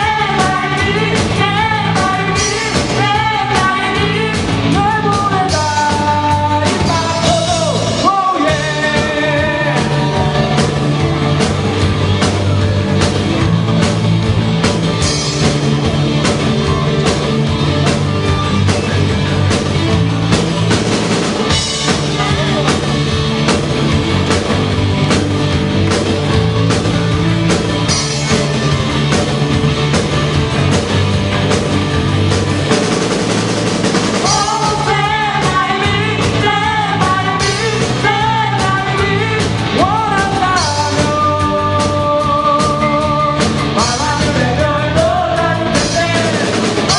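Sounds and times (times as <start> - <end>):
person singing with vibrato: 0.0 - 11.0, 34.1 - 46.9
drum kit beat: 0.0 - 46.9
rock band playing: 0.0 - 46.9.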